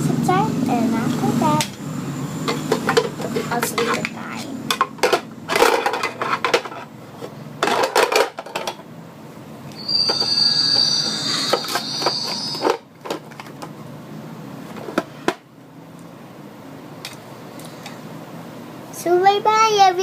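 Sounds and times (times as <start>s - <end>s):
plastic toy pieces clattering: 4.8s - 6.9s, 7.6s - 8.8s
high-pitched squeal: 9.7s - 12.8s.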